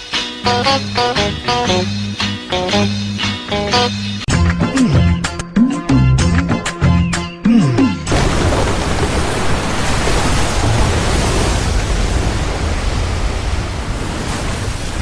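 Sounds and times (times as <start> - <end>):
heavy rain falling: 8.1 - 15.0.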